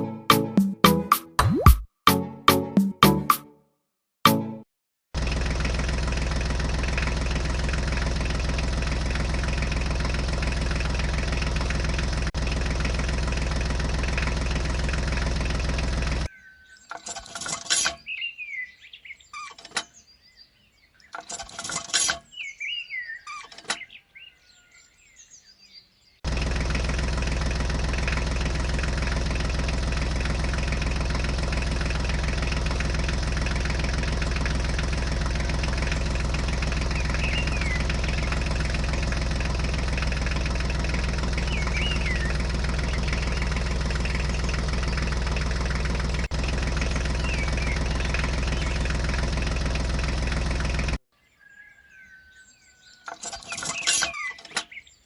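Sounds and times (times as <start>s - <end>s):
small motor droning: 5.2s - 16.3s, 26.2s - 51.0s
bird chirps: 16.3s - 26.2s, 35.9s - 38.8s, 41.1s - 45.6s, 46.9s - 49.0s, 51.2s - 55.0s.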